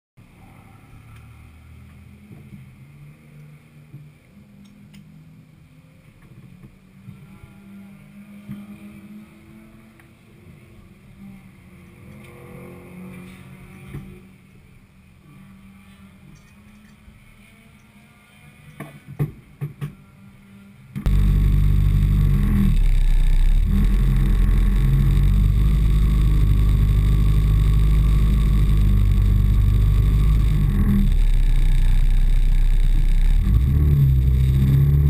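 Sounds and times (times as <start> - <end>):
car engine idling: 21.0 - 35.0.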